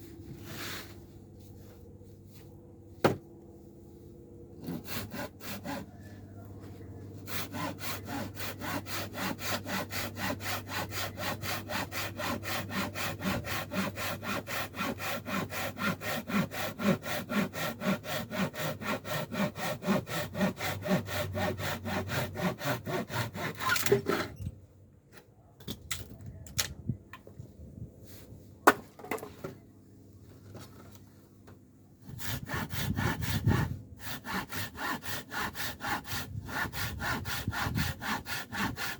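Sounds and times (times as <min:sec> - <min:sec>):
hand saw cutting wood: 0:04.6 - 0:06.1, 0:07.2 - 0:24.4, 0:32.0 - 0:38.9.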